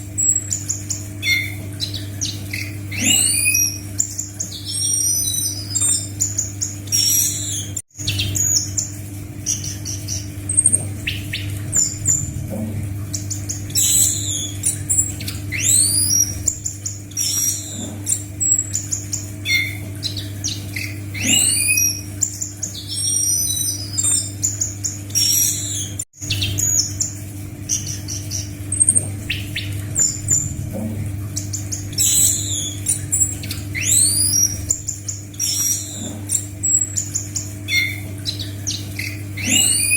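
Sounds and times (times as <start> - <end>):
bird singing chirps and whistles: 0.2 - 8.9, 9.5 - 12.3, 13.1 - 39.9
low hum: 8.0 - 21.4, 26.2 - 39.8.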